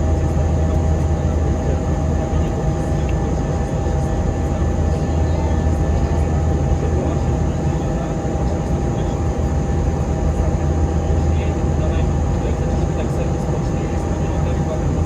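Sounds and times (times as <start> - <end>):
jet engine drone in cabin: 0.0 - 15.0.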